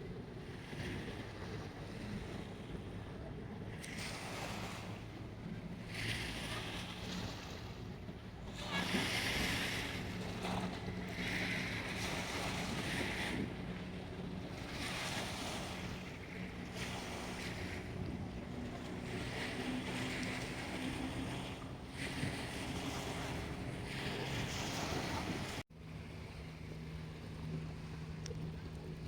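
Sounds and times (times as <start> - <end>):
waves splashing against shore: 3.8 - 25.6.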